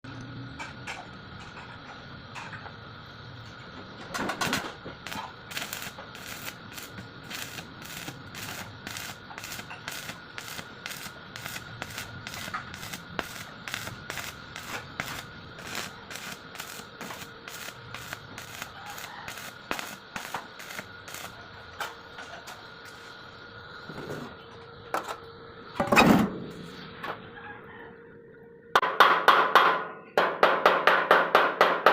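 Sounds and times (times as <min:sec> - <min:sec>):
faint steady whine: 0:00.0 - 0:28.8
crackling welding arc bursts: 0:03.2 - 0:23.7.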